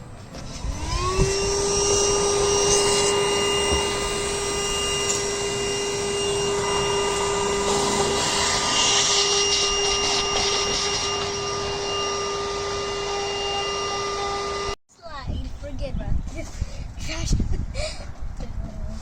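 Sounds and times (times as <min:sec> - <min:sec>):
handheld vacuum motor whine: 0:00.2 - 0:14.8.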